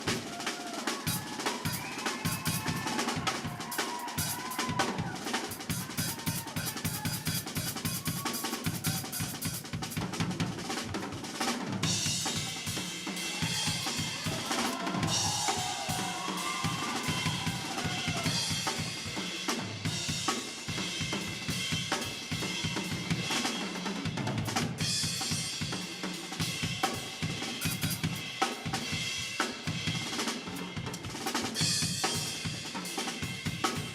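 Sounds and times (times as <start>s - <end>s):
drum kit played fast: 0.0s - 33.9s.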